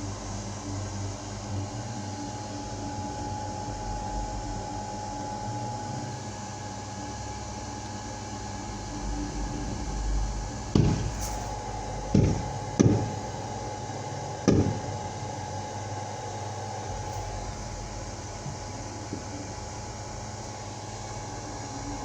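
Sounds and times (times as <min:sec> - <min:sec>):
steady background hum: 0:00.0 - 0:22.0
fireworks booming: 0:10.6 - 0:11.2.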